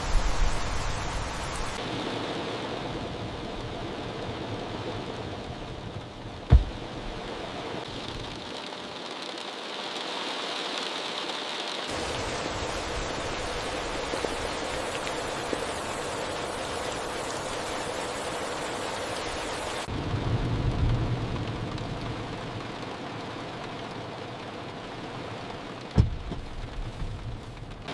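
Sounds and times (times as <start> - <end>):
heavy rain: 0.0 - 27.9
sharp thump: 6.5 - 6.8, 26.0 - 26.5.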